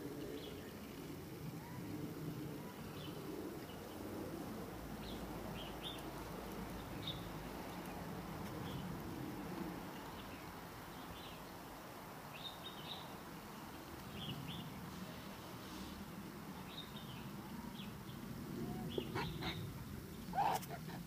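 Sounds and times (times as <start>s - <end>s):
low background noise: 0.0s - 21.0s
birds chirping: 4.9s - 8.9s, 16.5s - 21.0s.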